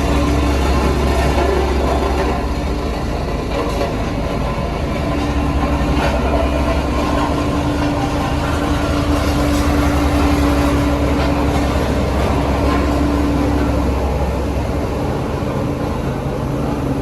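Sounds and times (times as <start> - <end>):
diesel machinery low rumble: 0.0 - 17.0
steady whine: 0.0 - 17.0.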